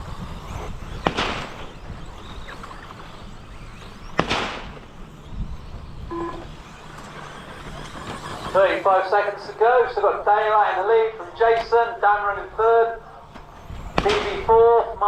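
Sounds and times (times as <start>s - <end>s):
toy trucks hitting dirt: 0.2s - 5.2s, 6.6s - 8.6s
short electronic beep: 6.1s - 6.5s.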